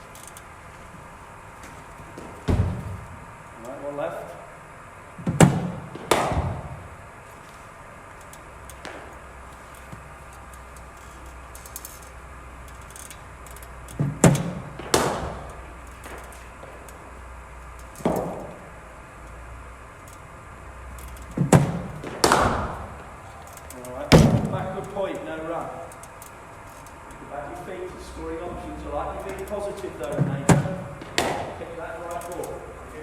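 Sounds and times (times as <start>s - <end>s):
bowling machine thump: 2.1s - 3.3s, 5.2s - 6.9s, 14.0s - 15.5s, 18.0s - 18.6s, 21.4s - 23.0s, 24.1s - 24.8s, 30.2s - 31.6s
ball cracking off a bat: 5.4s - 6.7s, 14.7s - 16.8s, 21.4s - 22.9s, 30.5s - 31.6s.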